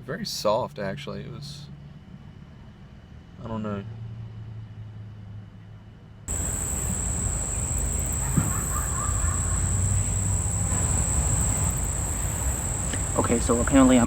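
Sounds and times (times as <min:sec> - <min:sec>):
insects chirring: 0:06.3 - 0:14.0.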